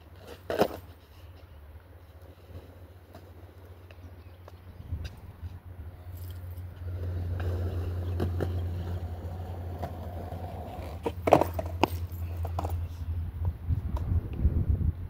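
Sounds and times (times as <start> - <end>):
skateboard wheels rolling on concrete: 0.0 - 15.0
skateboard clacks: 6.9 - 14.1.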